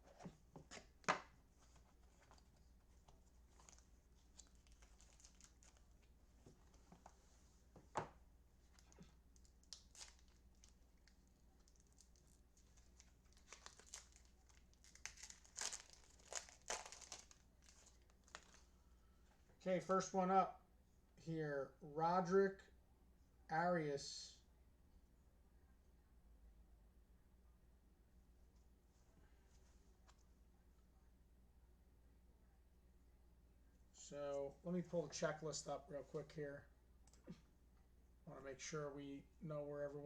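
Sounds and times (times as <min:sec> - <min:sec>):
rustling: 0:01.5 - 0:07.7
packaging tearing and crinkling: 0:03.6 - 0:06.0, 0:08.8 - 0:18.6.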